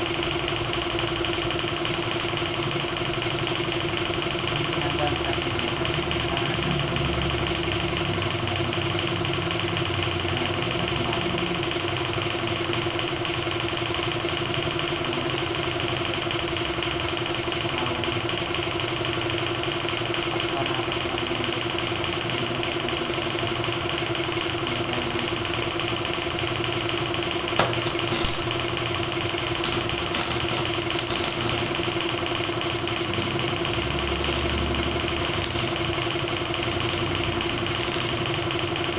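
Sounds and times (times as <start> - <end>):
sharp hissing bursts: 27.6 - 28.7, 29.6 - 31.9, 34.2 - 38.5
machine motor droning: 29.6 - 32.0, 33.7 - 38.8.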